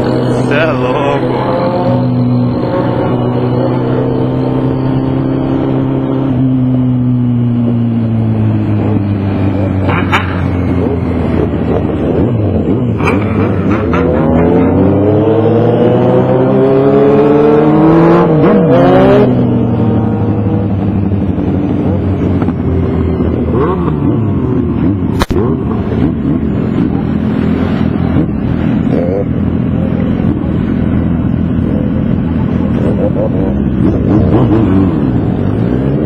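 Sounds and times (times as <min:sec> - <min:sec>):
motorcycle engine accelerating: 0:00.0 - 0:36.0
sharp click: 0:25.2 - 0:25.4.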